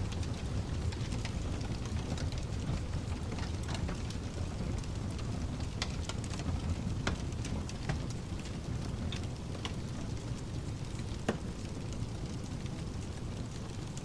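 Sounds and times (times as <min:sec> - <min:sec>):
burning wood snaps and pops: 0:00.0 - 0:14.0
fireplace crackling: 0:00.0 - 0:14.0
low rumble of pink noise: 0:00.0 - 0:14.0.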